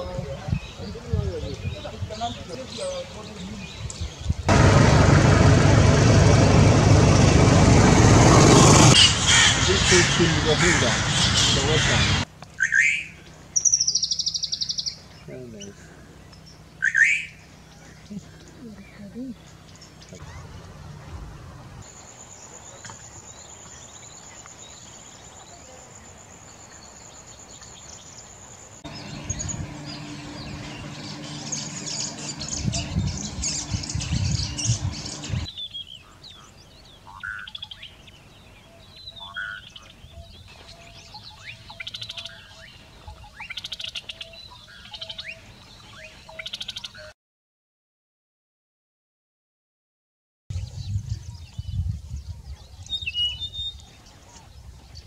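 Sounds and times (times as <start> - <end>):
birds calling and trilling: 0.0 - 47.1, 50.5 - 55.0
low steady hum: 28.9 - 35.5.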